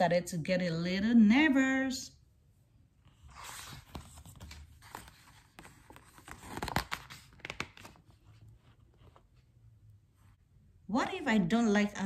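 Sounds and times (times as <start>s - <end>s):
book page turning: 3.0s - 9.5s.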